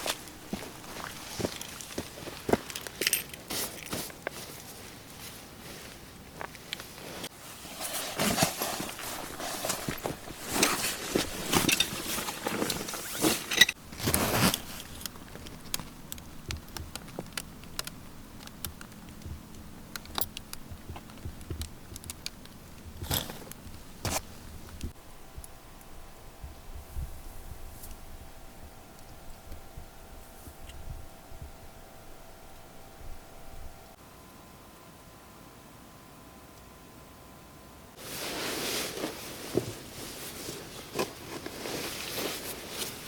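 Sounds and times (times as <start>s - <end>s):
gear rustling and clinking: 0.0s - 24.9s
light clicks and ticks: 15.0s - 22.8s.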